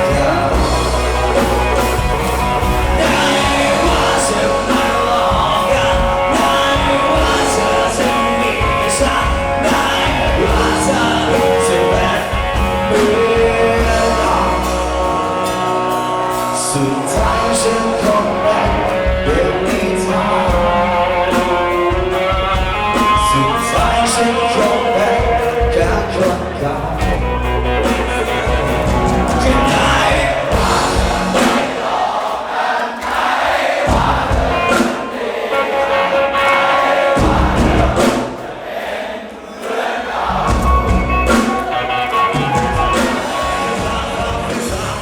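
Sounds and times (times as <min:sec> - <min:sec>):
person singing: 0:00.0 - 0:32.1
drums keeping beat: 0:00.0 - 0:45.0
live band music: 0:00.0 - 0:45.0.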